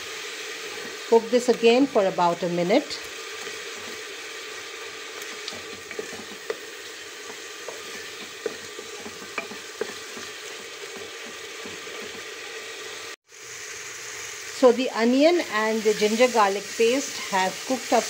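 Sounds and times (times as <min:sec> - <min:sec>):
onion sizzling in hot oil: 0:00.0 - 0:18.0
spatula knocking and scraping pot: 0:05.4 - 0:12.3.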